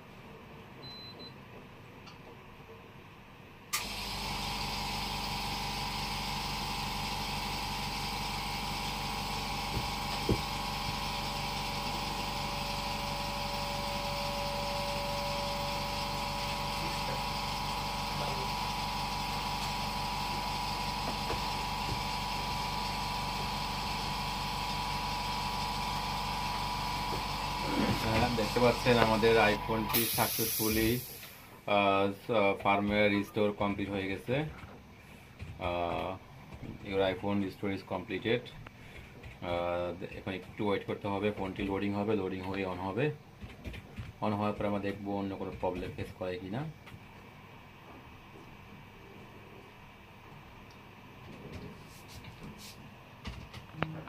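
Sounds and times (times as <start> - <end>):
electric blower running: 3.8 - 31.6.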